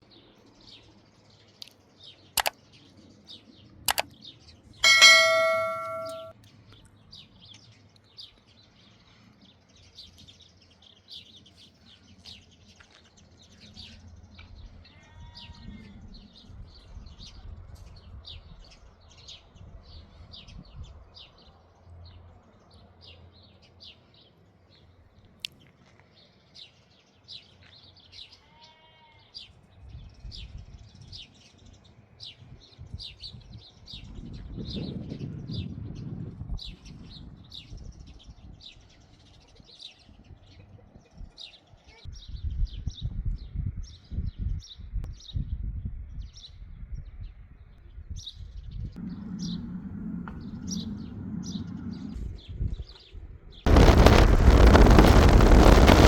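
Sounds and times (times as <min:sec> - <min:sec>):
sharp clicks: 0:03.9 - 0:04.1
birds chirping: 0:04.8 - 0:06.3, 0:49.0 - 0:56.0
loud ringing strike: 0:04.8 - 0:06.3.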